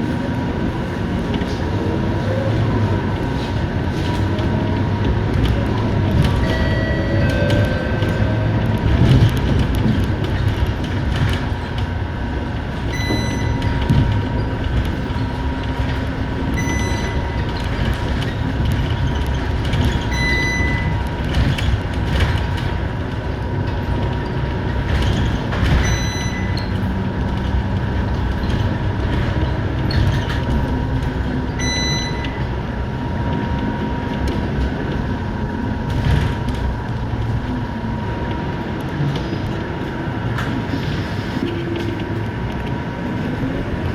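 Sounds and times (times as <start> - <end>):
bus diesel engine: 0.0 - 43.9
constant whine: 0.0 - 43.9
road rumble: 0.0 - 43.9
short high beep: 16.6 - 17.4, 20.1 - 21.0, 31.6 - 32.4.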